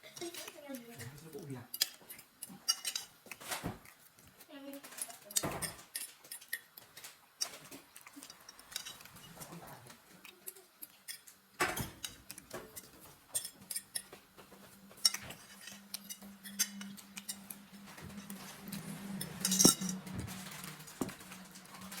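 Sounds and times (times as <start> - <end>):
cutlery clinking on a plate: 1.7 - 3.8, 4.9 - 9.5, 10.9 - 21.3.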